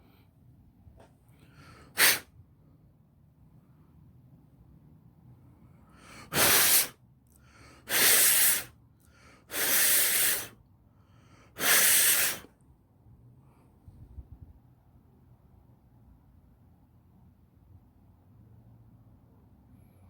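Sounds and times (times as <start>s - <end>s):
aerosol spray can hissing: 6.3s - 6.9s, 7.9s - 8.7s, 9.5s - 10.6s, 11.6s - 12.5s.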